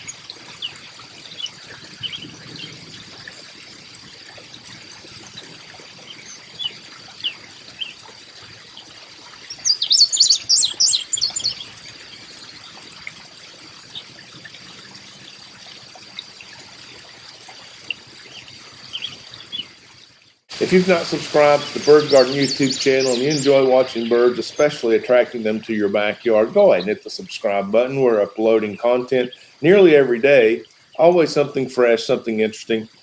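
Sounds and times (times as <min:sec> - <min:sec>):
birds chirping: 0:00.0 - 0:03.5, 0:04.9 - 0:08.1, 0:08.7 - 0:12.8, 0:17.8 - 0:19.8, 0:20.5 - 0:33.0
faint trickle of water: 0:00.0 - 0:33.0.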